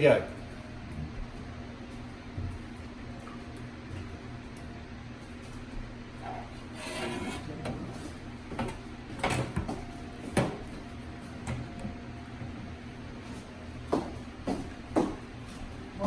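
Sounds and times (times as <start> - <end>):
steady low hum: 0.0 - 16.0
rubbing and scraping: 6.7 - 7.5.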